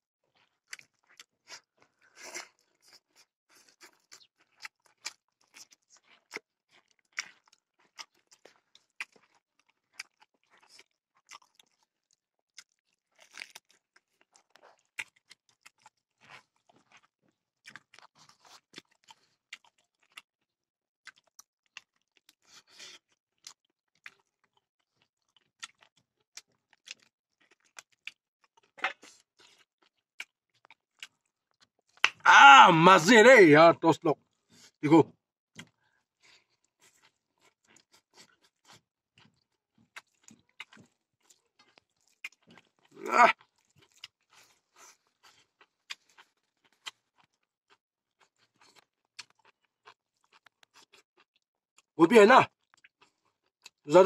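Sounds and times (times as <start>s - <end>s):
close-up chewing: 0.3s - 20.4s, 21.0s - 32.2s, 35.5s - 53.9s.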